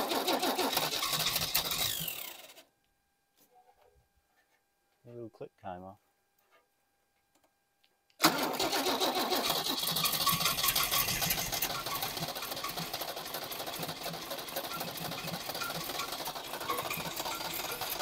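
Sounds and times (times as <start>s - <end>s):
car engine starting and idling: 8.2s - 18.0s.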